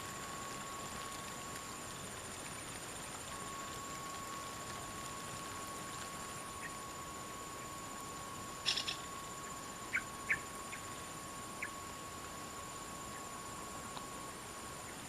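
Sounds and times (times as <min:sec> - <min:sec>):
steady high-pitched hum: 0:00.0 - 0:15.0
birds chirping: 0:08.6 - 0:09.0.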